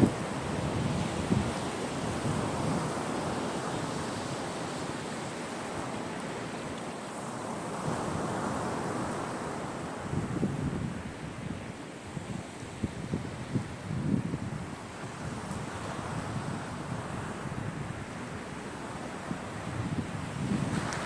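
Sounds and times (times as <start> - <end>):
wind buffeting microphone: 0.0 - 4.5, 9.9 - 21.0
sea waves washing onto shore: 0.0 - 21.0.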